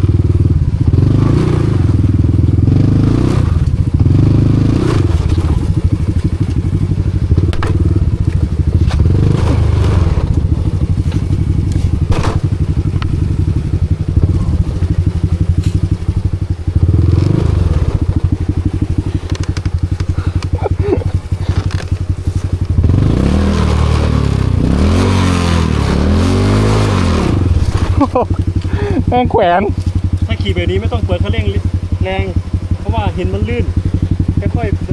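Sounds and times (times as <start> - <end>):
motorcycle engine revving: 0.0 - 34.9
bike knocking and scraping on stone: 5.1 - 16.9, 17.9 - 22.9.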